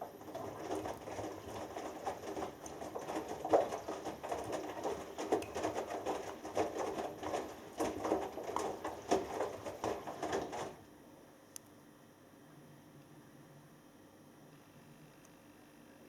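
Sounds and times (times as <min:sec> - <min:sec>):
washing machine drum tumbling: 0:00.0 - 0:10.8
water sloshing: 0:00.0 - 0:10.8
small click: 0:11.5 - 0:11.8.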